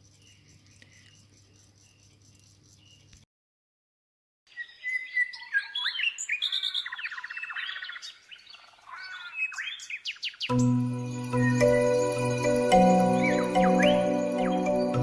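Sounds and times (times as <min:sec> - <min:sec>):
songbird chirping and trilling: 0:00.0 - 0:03.2, 0:04.5 - 0:15.0
music: 0:10.5 - 0:15.0.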